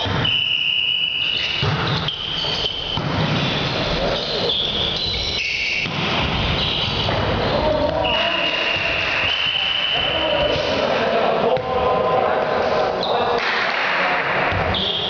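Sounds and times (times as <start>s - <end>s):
sneakers squeaking on court floor: 0.0s - 7.3s
echoing hall noise: 0.0s - 15.0s
players' voices: 5.8s - 15.0s.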